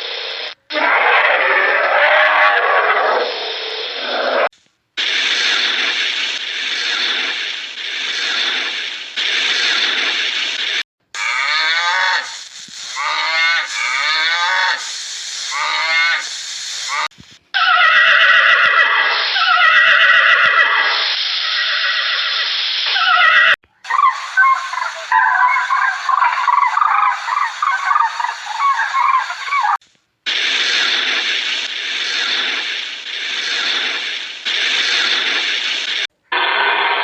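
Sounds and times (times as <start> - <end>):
rough hissing noise: 0.0 - 2.0, 2.6 - 17.5, 20.4 - 23.3, 23.9 - 37.0
animal calls falling in pitch: 0.7 - 4.5, 11.2 - 14.8, 16.9 - 29.8
high chattering animal calls: 0.7 - 5.8, 11.2 - 29.8.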